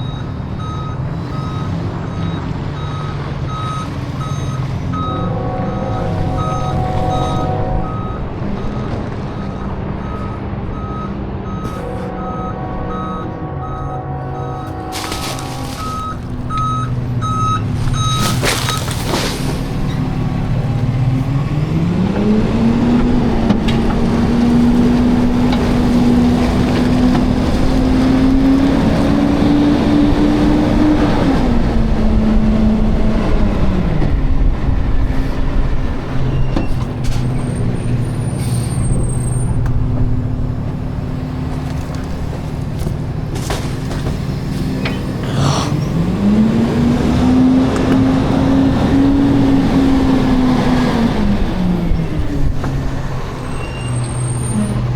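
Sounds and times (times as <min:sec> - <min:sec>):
truck reversing beeps: 0:00.0 - 0:21.6, 0:36.1 - 0:41.3, 0:48.2 - 0:54.9
diesel engine revving: 0:00.0 - 0:54.9.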